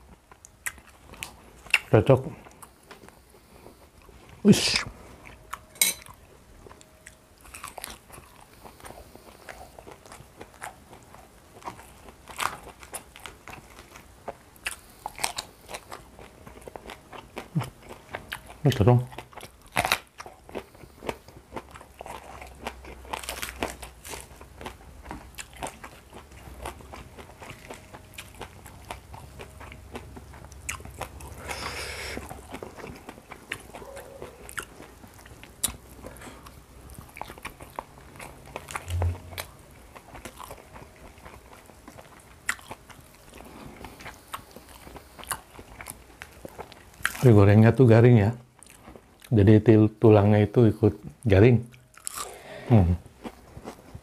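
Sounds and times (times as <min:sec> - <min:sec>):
chewing crispy fried fish: 0:00.0 - 0:49.5, 0:51.0 - 0:54.0.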